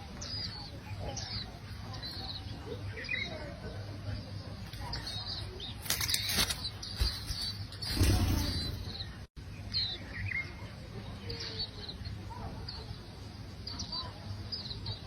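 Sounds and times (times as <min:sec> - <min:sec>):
small birds chirping: 0:00.0 - 0:15.0
rustling noise bursts: 0:06.3 - 0:09.1.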